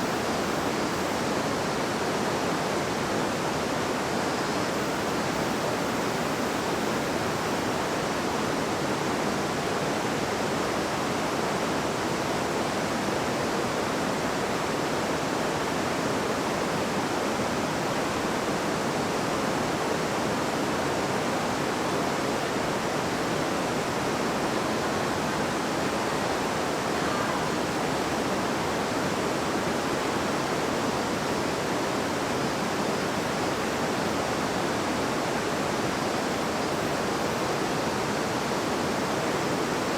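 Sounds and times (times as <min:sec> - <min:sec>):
river babbling: 0:20.9 - 0:39.9.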